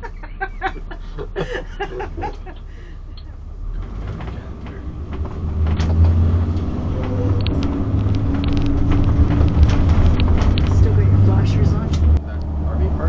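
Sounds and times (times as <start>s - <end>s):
engine and road rumble: 0.0s - 13.0s
cabin rattles and creaks: 3.8s - 12.2s.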